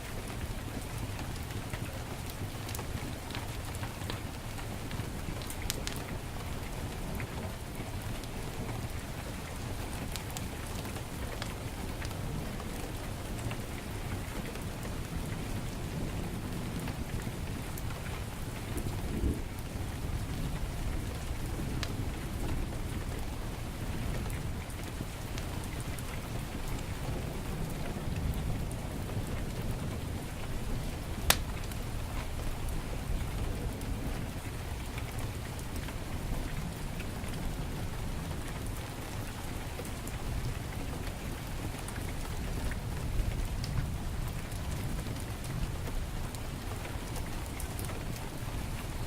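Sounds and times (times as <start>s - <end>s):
heavy rain falling: 0.0s - 49.0s
wood fire crackling: 0.3s - 49.0s
sharp pop from fire: 31.3s - 31.5s.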